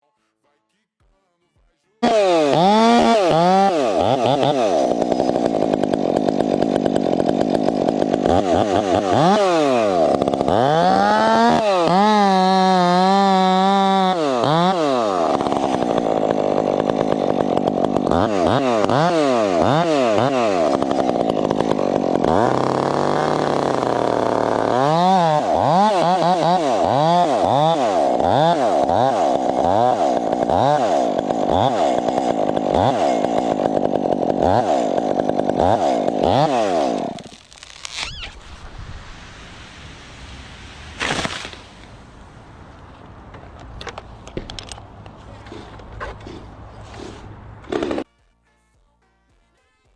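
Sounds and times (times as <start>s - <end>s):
chainsaw engine revving: 2.0s - 38.4s, 45.3s - 48.1s.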